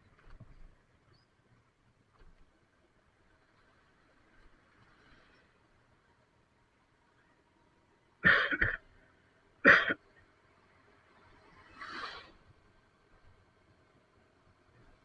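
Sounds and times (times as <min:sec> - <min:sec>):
person coughing: 0:08.2 - 0:08.8, 0:09.7 - 0:10.0.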